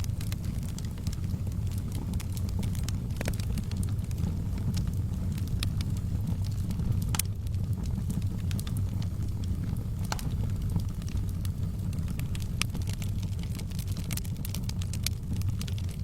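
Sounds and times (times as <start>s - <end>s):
fire flames rumbling: 0.0s - 16.0s
logs crackling and popping: 0.0s - 16.0s.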